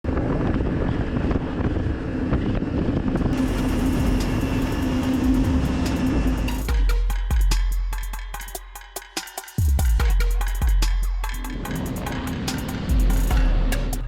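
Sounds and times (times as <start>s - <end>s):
jet ski engine humming: 3.2s - 7.8s, 10.4s - 14.0s.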